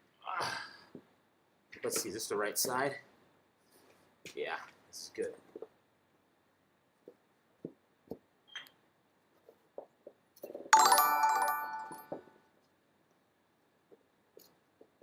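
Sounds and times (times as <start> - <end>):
electronic alert chime: 10.8 - 12.3.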